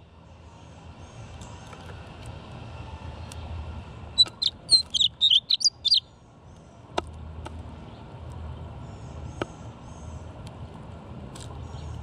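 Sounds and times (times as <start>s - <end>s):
distant traffic rumble: 0.0s - 12.0s
songbird chirping: 4.2s - 6.7s.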